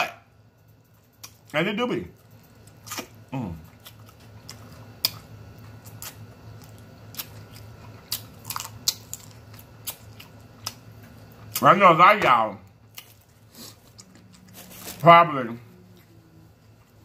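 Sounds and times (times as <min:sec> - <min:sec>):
person chewing: 0:01.0 - 0:01.5, 0:02.4 - 0:11.6, 0:12.8 - 0:15.0
lip smacks and mouth clicks: 0:02.9 - 0:03.2.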